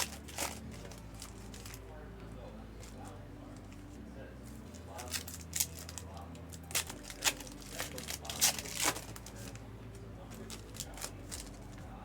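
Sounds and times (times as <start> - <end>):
wrappers torn and crinkled: 0.0 - 1.9, 4.7 - 9.6, 10.3 - 11.8.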